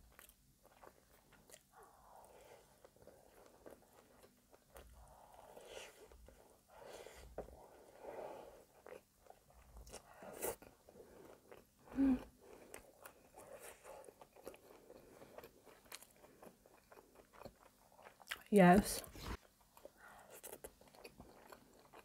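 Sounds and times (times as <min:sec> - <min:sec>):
chewing with wet mouth clicks: 0:00.0 - 0:01.8, 0:12.6 - 0:18.5, 0:19.4 - 0:22.0.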